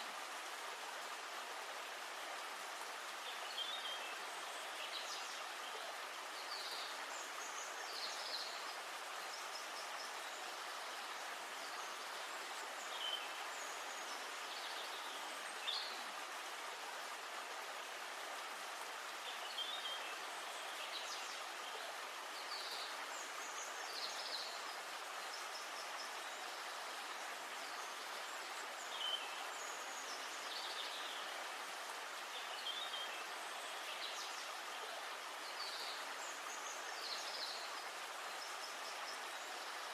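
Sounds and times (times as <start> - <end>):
flowing river water: 0.0 - 39.9.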